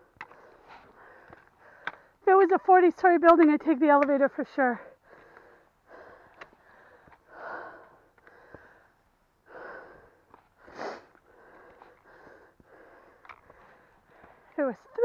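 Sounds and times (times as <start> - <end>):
person breathing hard: 0.0 - 2.2, 4.9 - 14.6
trekking pole tapping on rock: 3.9 - 4.2.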